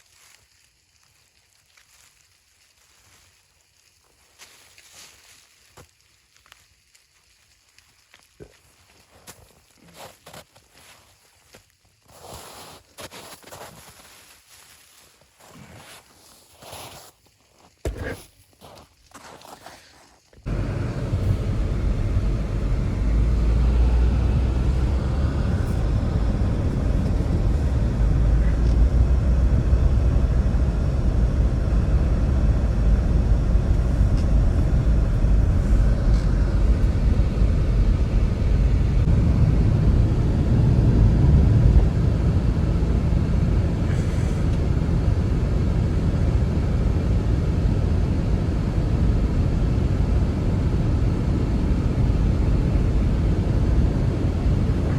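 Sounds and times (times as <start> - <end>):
wind roaring: 20.5 - 54.9.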